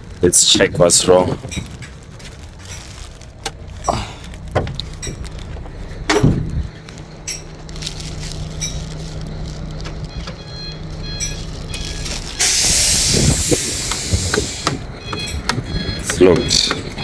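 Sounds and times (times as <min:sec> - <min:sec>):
loud air hiss: 0:12.4 - 0:14.8.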